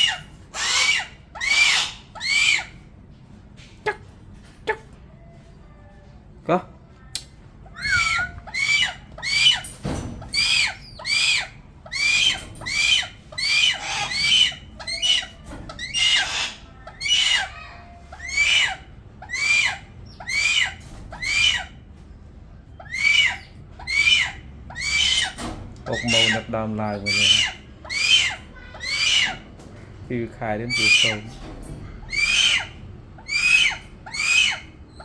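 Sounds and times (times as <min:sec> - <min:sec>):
hawk screaming calls: 0:00.0 - 0:02.7, 0:07.8 - 0:09.6, 0:10.4 - 0:21.8, 0:22.8 - 0:29.4, 0:32.1 - 0:34.7.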